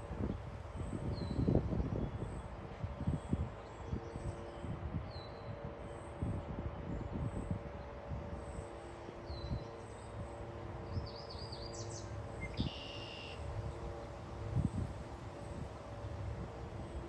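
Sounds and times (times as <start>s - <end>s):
songbird calls: 11.0s - 13.4s.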